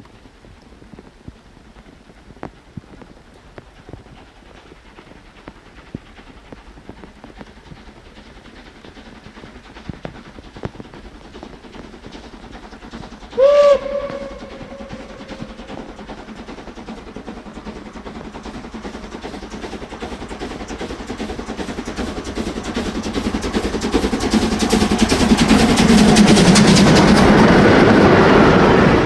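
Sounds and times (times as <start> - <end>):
approaching train running: 0.0 - 29.0
steam whistle blast: 13.4 - 15.6.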